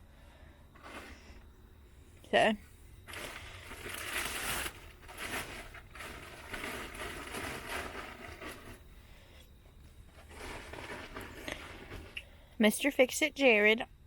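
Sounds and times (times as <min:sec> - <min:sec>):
plastic tarp rustling and crinkling: 0:00.8 - 0:01.3, 0:03.0 - 0:08.8, 0:10.0 - 0:12.2.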